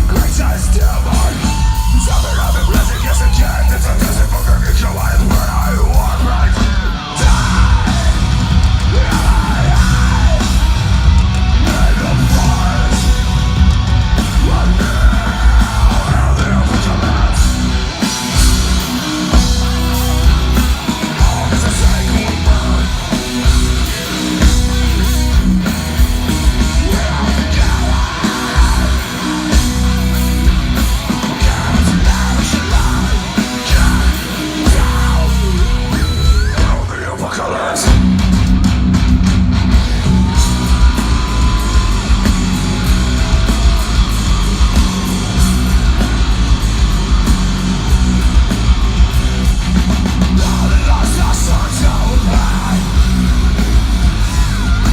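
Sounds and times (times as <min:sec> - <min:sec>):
heavy metal band playing live: 0:00.0 - 0:54.9.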